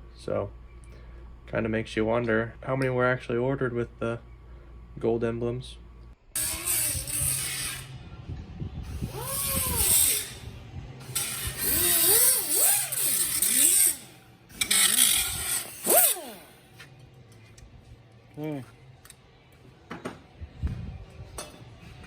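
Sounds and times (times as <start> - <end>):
air tool whining: 6.4 - 16.8
exhaust air hissing: 8.8 - 16.8.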